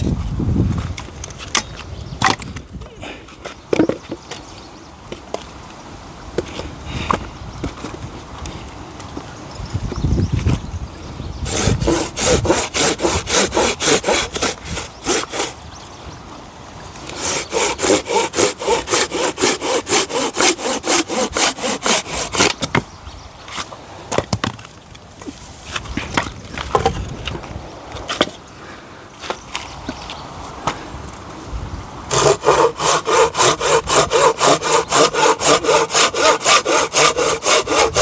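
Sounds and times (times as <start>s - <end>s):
hand saw cutting wood: 11.4s - 15.6s, 17.0s - 22.8s, 32.1s - 38.0s.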